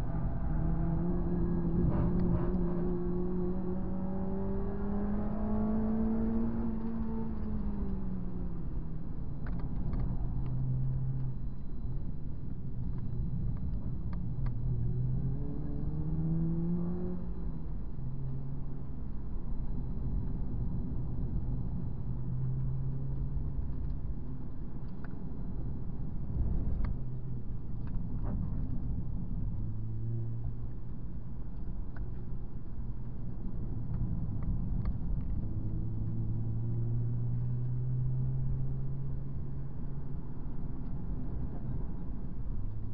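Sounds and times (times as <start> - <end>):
car engine revving from inside: 0.0 - 8.5, 14.8 - 17.4
road and tyre noise: 0.0 - 42.9.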